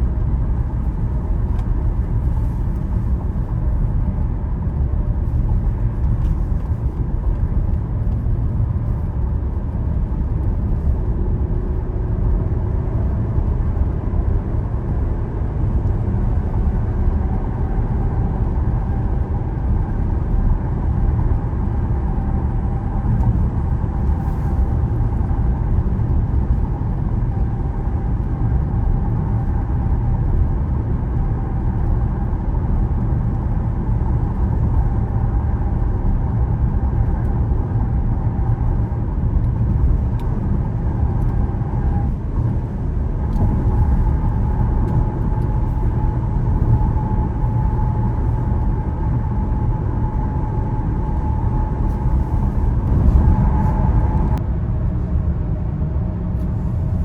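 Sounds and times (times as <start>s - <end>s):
car engine hum: 0.0s - 57.0s
road and tyre noise: 0.0s - 57.0s.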